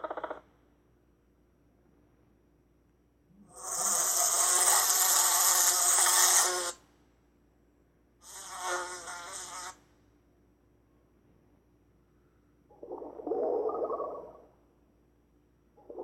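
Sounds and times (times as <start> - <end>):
insect buzzing: 3.5 - 6.8, 8.2 - 9.8.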